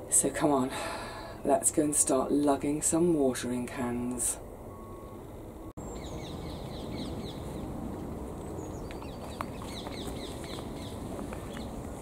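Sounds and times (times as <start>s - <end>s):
outdoor background hum: 0.0s - 12.0s
birds chirping: 4.9s - 12.0s.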